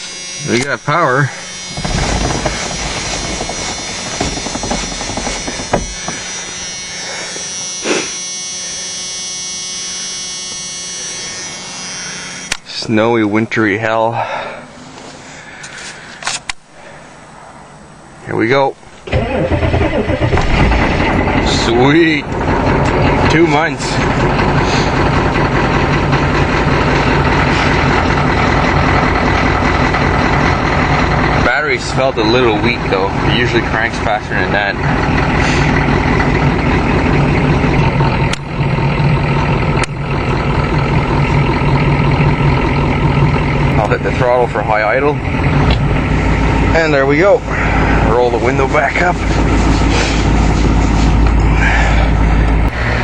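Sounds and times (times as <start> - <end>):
diesel engine idling: 0.0 - 12.6, 18.8 - 53.0
machine buzz with high whine: 0.0 - 13.8, 18.8 - 51.4
short knocks: 1.6 - 6.6.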